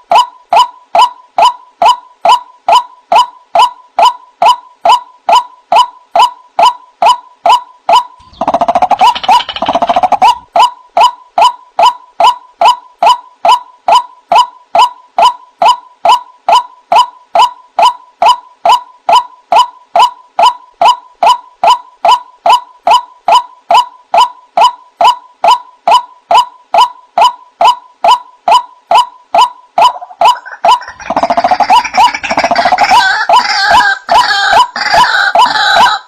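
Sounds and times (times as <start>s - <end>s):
waterhen kwak calls: 7.9s - 10.5s, 28.9s - 36.0s
harsh bird chattering: 8.2s - 10.4s, 28.9s - 36.0s.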